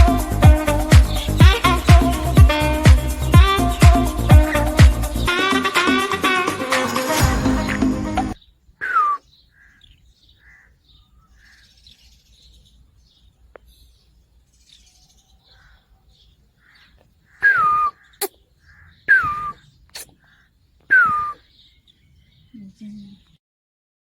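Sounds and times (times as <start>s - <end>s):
cockatiel harsh calls: 16.6s - 21.5s
soft short chirps: 19.1s - 20.2s.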